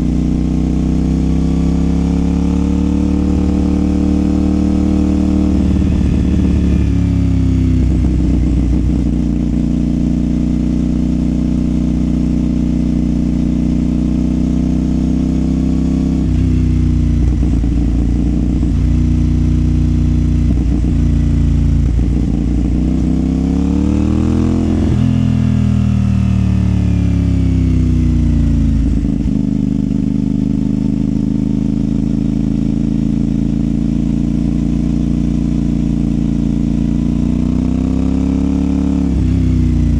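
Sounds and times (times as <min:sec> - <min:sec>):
motorcycle engine shifting gears: 0:00.0 - 0:29.8.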